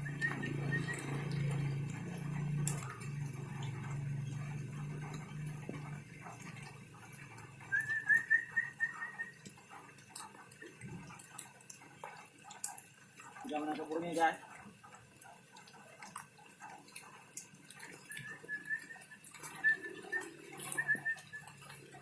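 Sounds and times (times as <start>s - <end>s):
bird whistled chirps: 0.0s - 1.5s, 7.6s - 9.4s, 18.0s - 21.8s
low steady hum: 0.0s - 22.0s.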